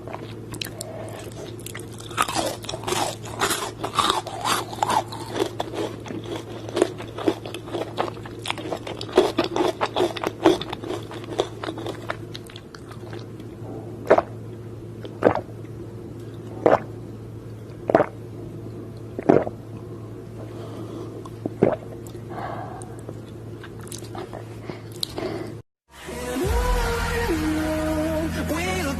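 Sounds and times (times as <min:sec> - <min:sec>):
chewing crispy fried chicken: 0:00.0 - 0:13.5, 0:22.8 - 0:25.3
steady low hum: 0:00.0 - 0:28.9
music: 0:25.9 - 0:28.9.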